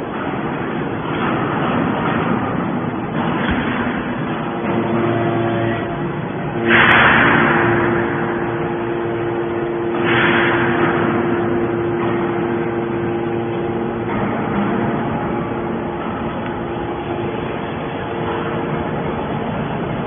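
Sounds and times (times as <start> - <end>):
rushing crunching metal noise: 0.0 - 20.0
baler motor humming: 3.0 - 20.0.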